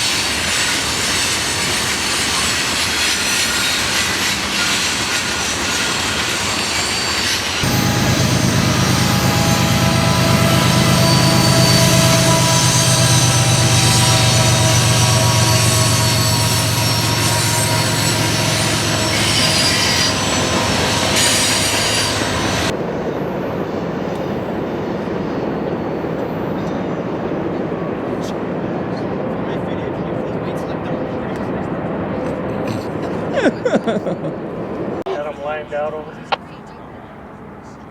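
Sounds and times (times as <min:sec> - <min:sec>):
train wheels squealing on rails: 0:00.0 - 0:22.8
dull train rumble: 0:00.0 - 0:35.0
train low drone: 0:00.0 - 0:35.0.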